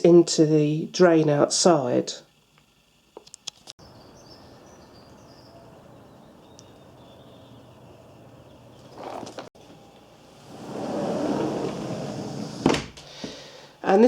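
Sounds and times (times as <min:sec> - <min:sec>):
steady background hiss: 0:00.0 - 0:14.0
faint high bird chirps: 0:03.8 - 0:09.0.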